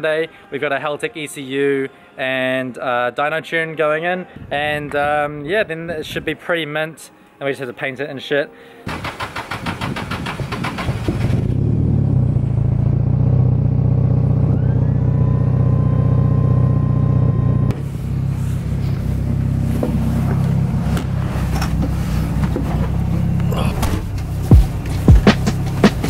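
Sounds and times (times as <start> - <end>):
car engine idling: 9.1 - 26.0
car engine heard from inside: 11.8 - 25.9
faint rising whine: 13.6 - 20.9.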